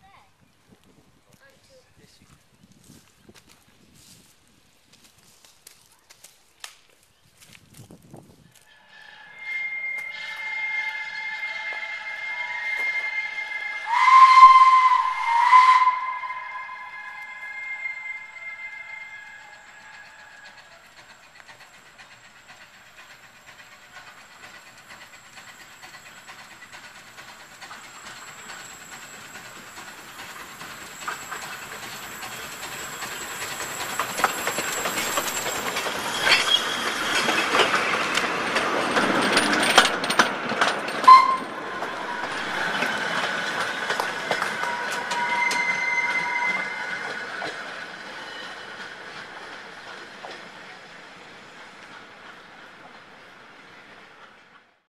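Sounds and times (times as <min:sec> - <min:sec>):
light railway train passing: 0:07.4 - 0:54.9
high-pitched wheel squeals: 0:08.6 - 0:21.4, 0:27.6 - 0:38.0, 0:41.0 - 0:48.9
wheels clicking over rail joints: 0:18.5 - 0:54.7.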